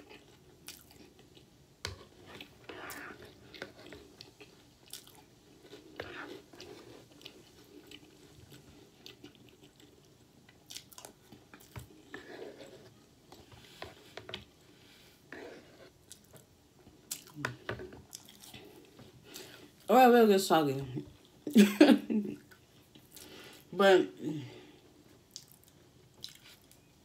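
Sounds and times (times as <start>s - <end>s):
person chewing cereal: 0.0s - 19.9s, 22.4s - 23.7s, 24.7s - 26.9s.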